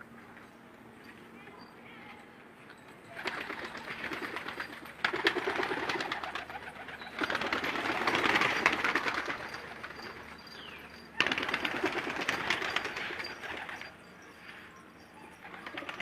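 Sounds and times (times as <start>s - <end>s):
pigeons cooing: 3.1s - 14.4s, 15.1s - 16.0s.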